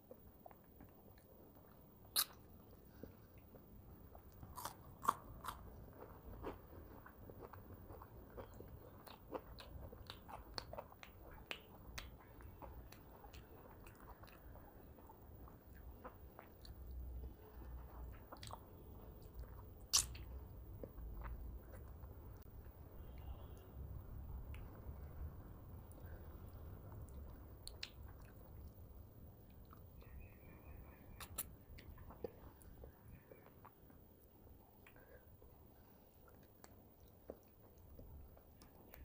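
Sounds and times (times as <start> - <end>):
person chewing and biting food: 2.1 - 2.4, 4.2 - 16.8
wet mouth clicks and crunches: 2.1 - 2.4, 19.9 - 20.3, 31.2 - 32.2.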